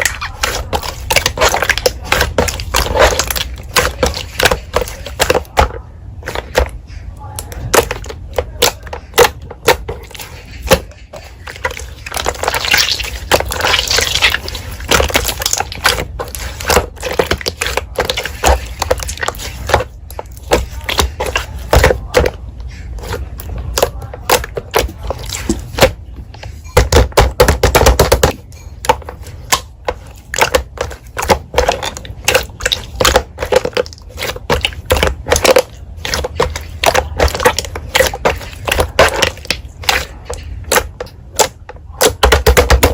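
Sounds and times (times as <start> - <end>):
slime squished by hand: 6.2 - 26.0.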